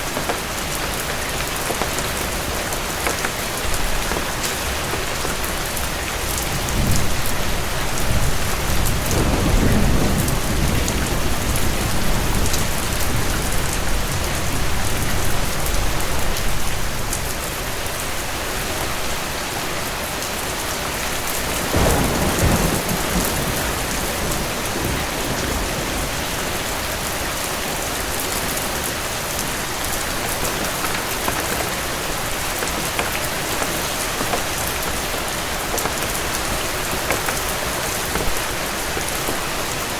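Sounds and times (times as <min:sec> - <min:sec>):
heavy rain falling: 0:00.0 - 0:39.9
low rolling thunder: 0:06.4 - 0:14.7, 0:21.6 - 0:27.1.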